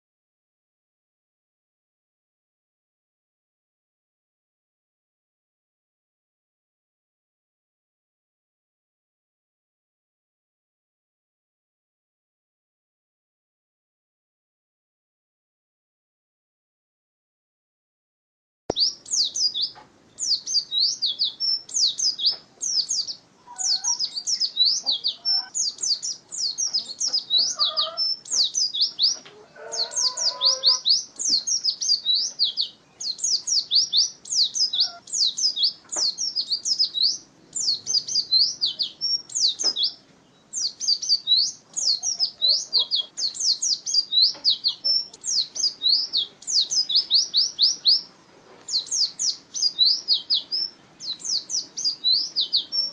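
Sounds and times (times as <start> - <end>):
bird twittering: 18.7 - 48.1, 48.7 - 52.9.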